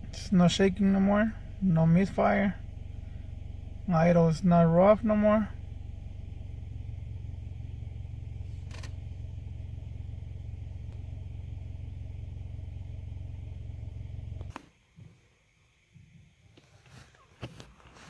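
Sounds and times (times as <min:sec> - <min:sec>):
car engine idling: 0:00.0 - 0:14.6.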